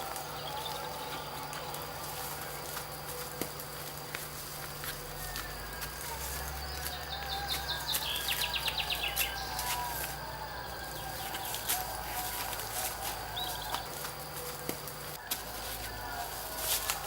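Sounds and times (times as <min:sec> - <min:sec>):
bird calls: 0:00.0 - 0:04.1, 0:04.7 - 0:17.0
steady low hum: 0:00.0 - 0:17.0
sharp bird chirps: 0:06.5 - 0:14.0.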